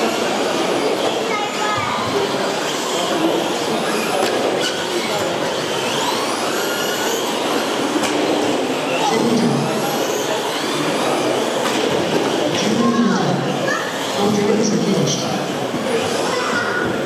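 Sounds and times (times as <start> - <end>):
toy truck electric motors whining: 0.0 - 12.4
hall background noise: 0.0 - 17.0.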